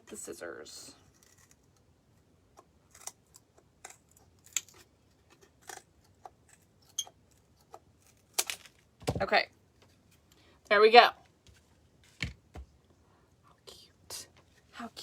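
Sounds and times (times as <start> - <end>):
twigs snapping: 8.3 - 8.8.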